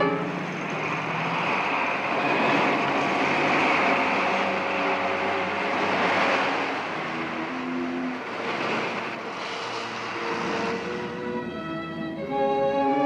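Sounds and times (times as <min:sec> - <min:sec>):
held music notes: 0:00.0 - 0:13.0
vehicle engine running: 0:00.0 - 0:13.0.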